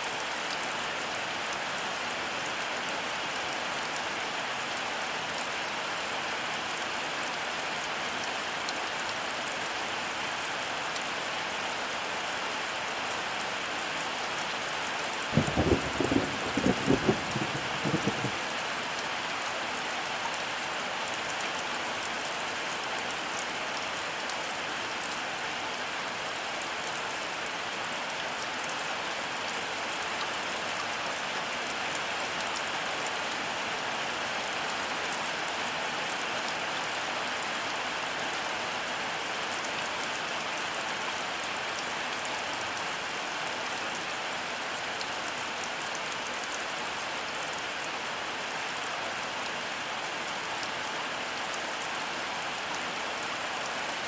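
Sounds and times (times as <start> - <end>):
heavy rain falling: 0.1 - 54.0
low rumble of thunder: 15.3 - 18.5.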